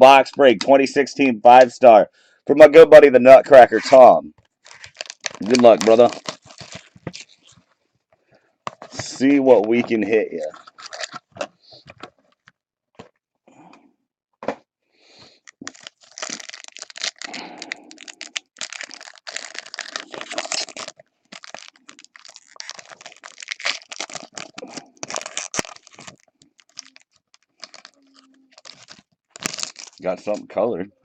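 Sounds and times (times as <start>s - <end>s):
plastic wrapping crinkling and tearing: 3.5s - 7.8s, 8.7s - 12.5s, 15.3s - 30.4s.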